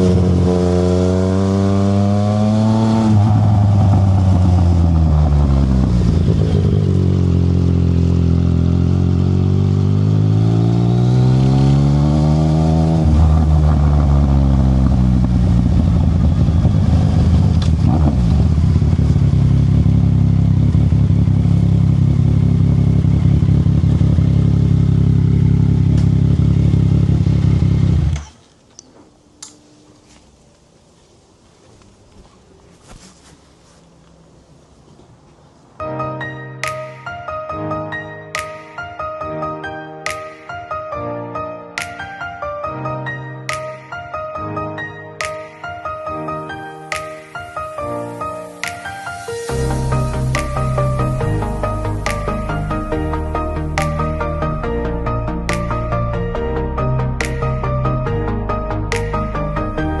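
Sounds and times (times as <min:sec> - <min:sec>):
motorcycle engine revving: 0:00.0 - 0:28.4, 0:49.5 - 0:56.1.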